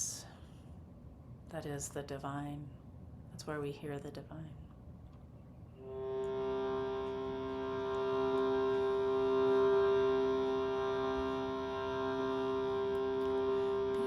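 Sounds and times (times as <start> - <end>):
instrumental drone chord: 5.8 - 14.0.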